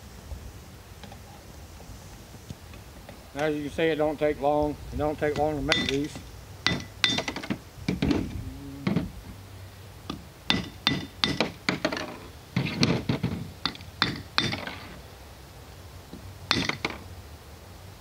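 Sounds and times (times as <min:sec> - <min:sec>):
metal tools clinking on steel mold: 0:05.2 - 0:07.5.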